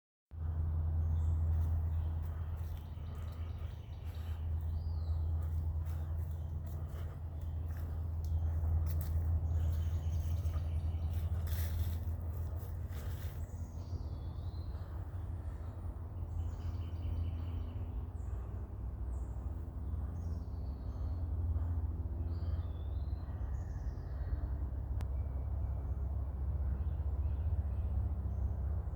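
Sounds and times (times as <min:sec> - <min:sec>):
songbirds chirping: 0:00.3 - 0:28.9
steady low rumble: 0:00.3 - 0:28.9
rustles: 0:01.5 - 0:13.7.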